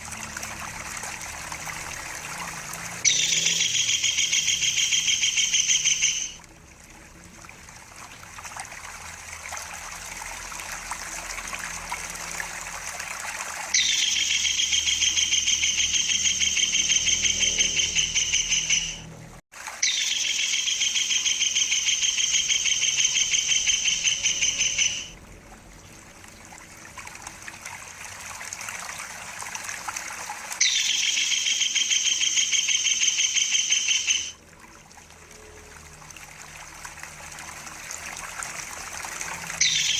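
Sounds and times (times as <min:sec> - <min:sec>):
kingfisher rolling trills: 0:00.0 - 0:06.4, 0:13.6 - 0:19.1, 0:19.8 - 0:25.1, 0:30.5 - 0:34.4, 0:39.0 - 0:39.9
water trickling: 0:00.0 - 0:39.9.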